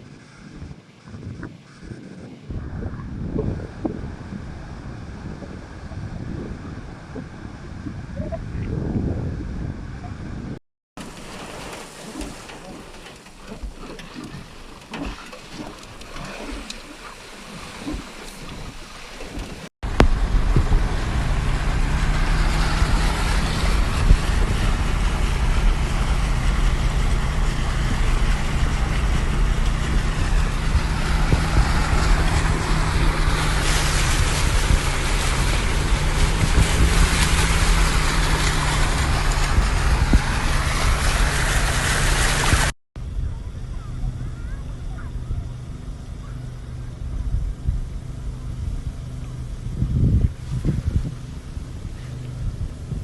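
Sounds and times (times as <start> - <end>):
low engine hum: 0.0 - 53.0
floodwater rushing: 11.0 - 42.7.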